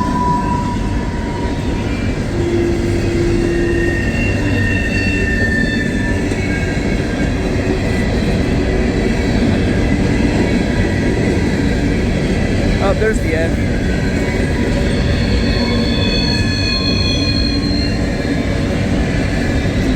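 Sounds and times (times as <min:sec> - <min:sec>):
high-pitched wheel squeals: 0:00.0 - 0:08.4, 0:13.7 - 0:19.9
rail cars rumbling past: 0:00.0 - 0:19.9.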